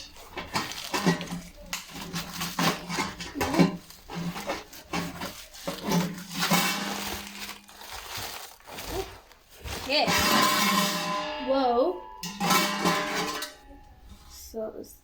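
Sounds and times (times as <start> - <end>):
crinkling rustle of packing: 0.0 - 11.2
cardboard box being handled: 0.4 - 10.4.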